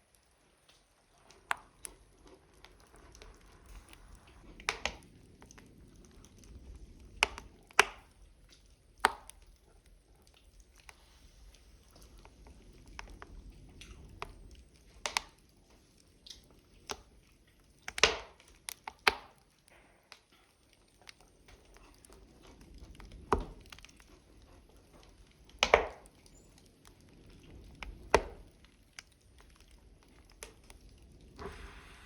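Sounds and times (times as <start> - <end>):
wood fire crackling: 0.0 - 32.0
loud sharp fire pops: 25.6 - 26.1.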